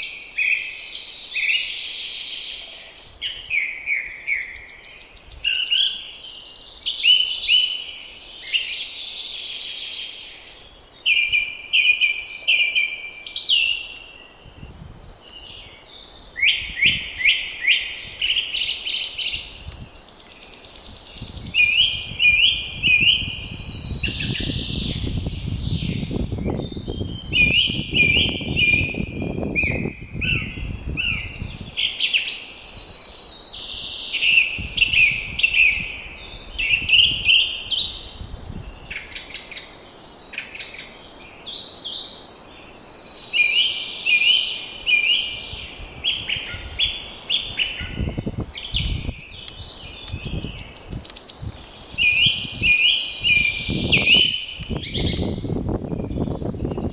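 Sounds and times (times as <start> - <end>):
songbirds singing: 0.0 - 56.9
wind gust rumbling: 20.8 - 31.8, 33.7 - 38.9, 45.4 - 56.9.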